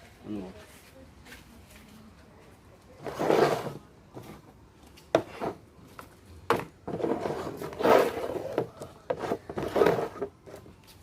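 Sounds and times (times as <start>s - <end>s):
cups scraping on table: 3.0s - 3.8s, 5.1s - 5.6s, 6.9s - 10.6s.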